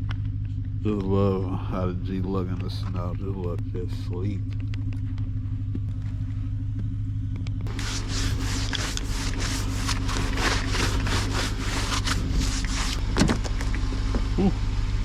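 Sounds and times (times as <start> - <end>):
scraping ice off car: 7.7 - 13.2.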